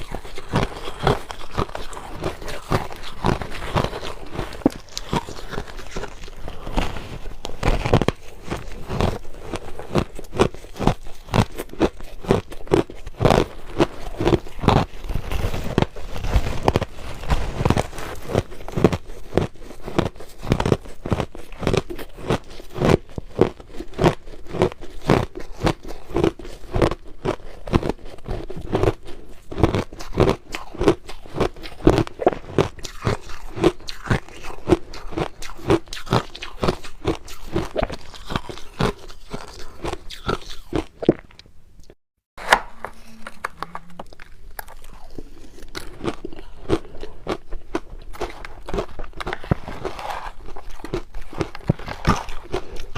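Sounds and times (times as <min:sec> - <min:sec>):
crushed ice crunching: 0:00.0 - 0:27.8, 0:42.7 - 0:52.9.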